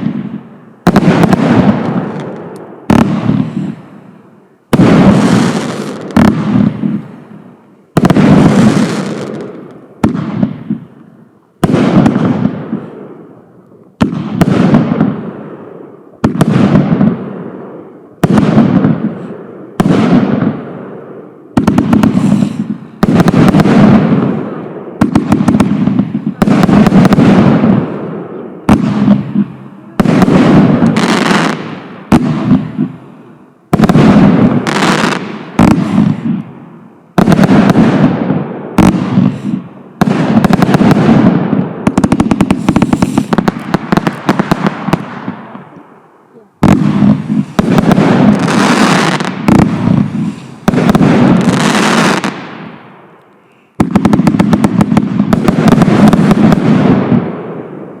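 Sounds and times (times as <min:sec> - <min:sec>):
firework bangs with crackling tail: 0:00.0 - 0:04.1, 0:04.7 - 0:46.0, 0:46.6 - 0:53.2, 0:53.8 - 0:58.0.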